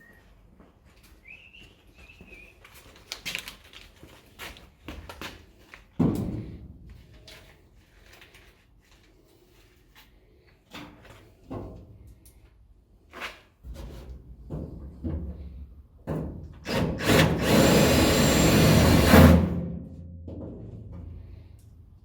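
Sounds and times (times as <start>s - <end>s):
knocks and clatter of shop work: 4.3s - 8.1s, 10.6s - 12.3s, 13.2s - 21.6s
power tool running: 16.7s - 19.6s.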